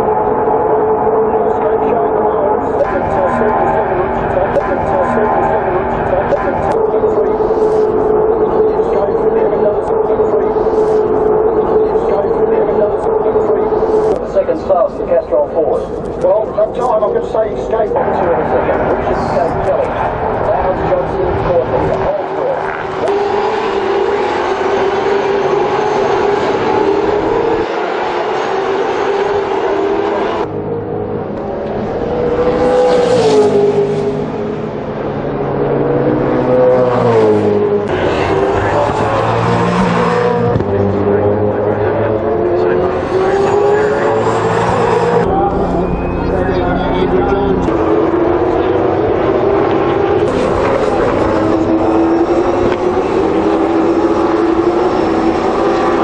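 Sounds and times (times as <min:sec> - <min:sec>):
race car engine accelerating: 0:00.0 - 0:56.0.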